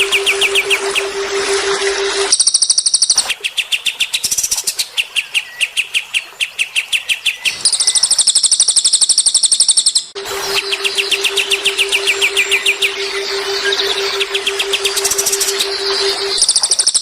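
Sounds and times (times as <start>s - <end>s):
songbird trilling: 6.6s - 17.0s.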